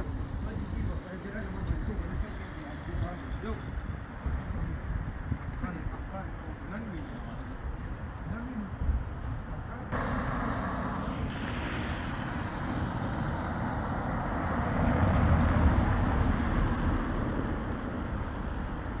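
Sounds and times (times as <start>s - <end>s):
heavy vehicle engine rumble: 9.9s - 19.0s
tyres hissing on wet road: 10.0s - 19.0s.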